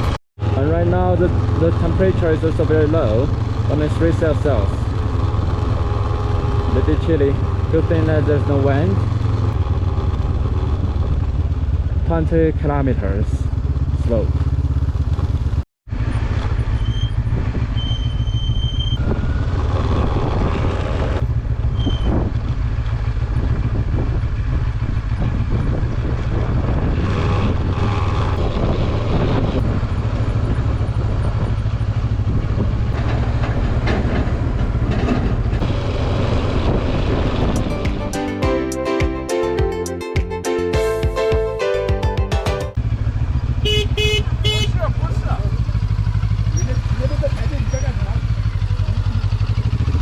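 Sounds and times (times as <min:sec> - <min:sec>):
motorcycle engine running: 0:00.0 - 0:41.5, 0:42.7 - 0:50.0
tyre and wind noise: 0:15.1 - 0:38.1.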